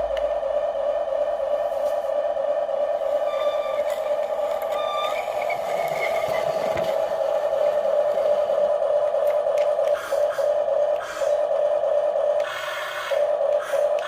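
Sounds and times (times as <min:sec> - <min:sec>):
small electric motors whirring: 0:03.2 - 0:08.5.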